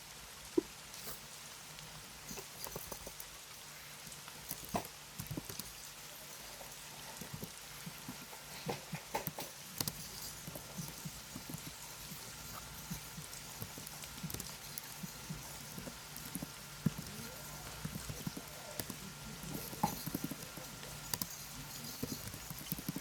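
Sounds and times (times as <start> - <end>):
computer keyboard typing: 9.2 - 23.0.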